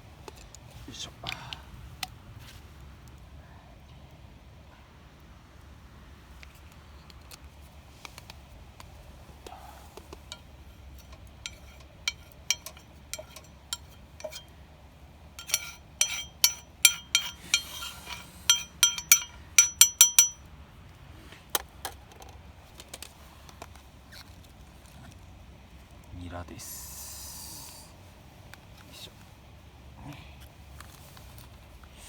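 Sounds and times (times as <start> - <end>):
metal utensil clinking on cookware: 10.3 - 14.5, 15.4 - 20.4.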